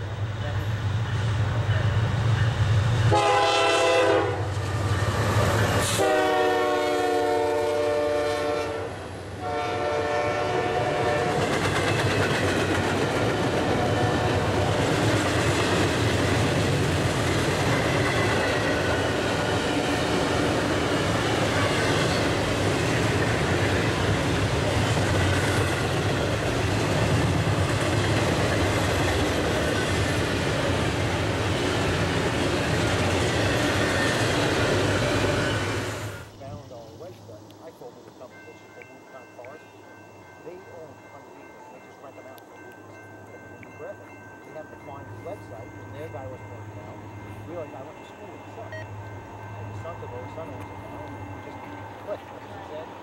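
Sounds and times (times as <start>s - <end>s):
train cars rumbling past: 0.0s - 53.0s
locomotive air horn blasts: 3.1s - 4.5s, 5.8s - 11.4s.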